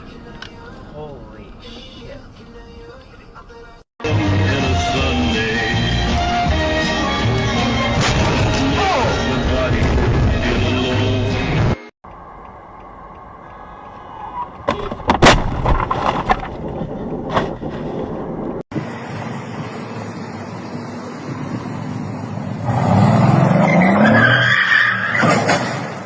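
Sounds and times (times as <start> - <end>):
car road noise: 0.0 - 26.0
sharp crash impacts: 14.7 - 16.6.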